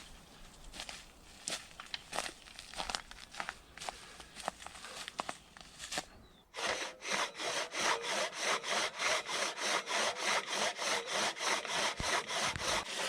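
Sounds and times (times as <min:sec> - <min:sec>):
hand saw cutting log: 0:06.6 - 0:13.0.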